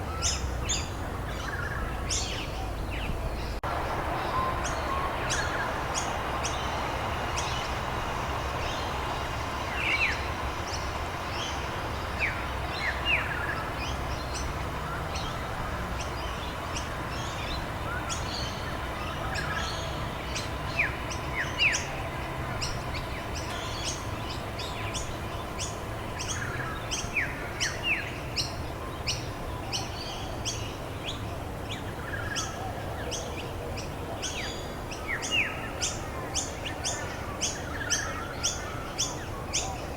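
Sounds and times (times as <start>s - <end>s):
songbirds chirping: 0.0s - 39.9s
rain hissing: 3.6s - 26.1s.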